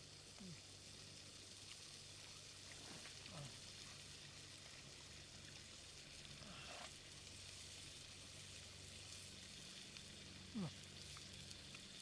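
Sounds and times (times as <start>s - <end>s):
meat sizzling in a skillet: 6.7s - 12.0s.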